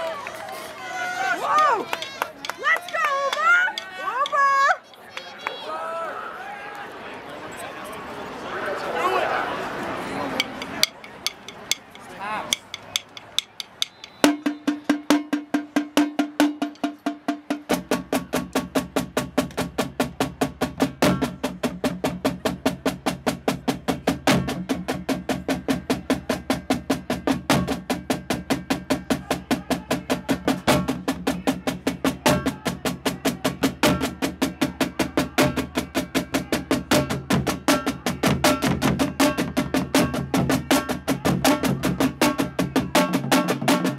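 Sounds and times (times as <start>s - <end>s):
drum stick hits: 10.4s - 14.5s
drum roll: 10.4s - 43.9s
snare and drum cadence: 10.4s - 43.9s.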